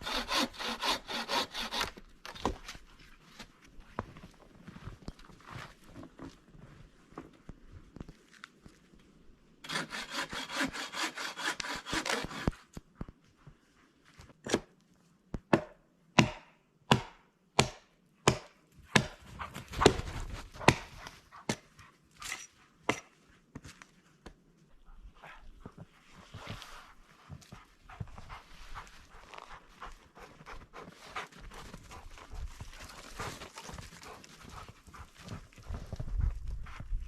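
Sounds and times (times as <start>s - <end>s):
hand saw cutting wood: 0.0s - 2.7s, 9.6s - 12.7s, 19.8s - 21.6s.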